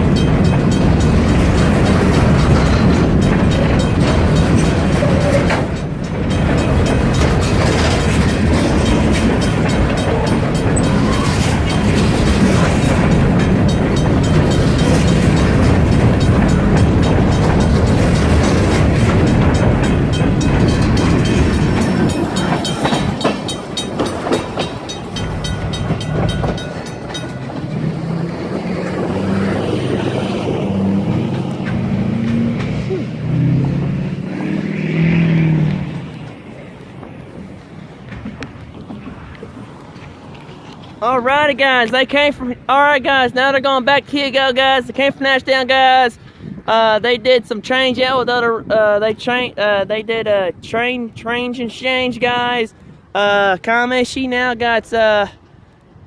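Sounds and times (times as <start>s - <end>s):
low droning: 0.0s - 40.8s
freight train rumble: 0.0s - 56.0s
wheels clicking over rail joints: 0.0s - 56.0s.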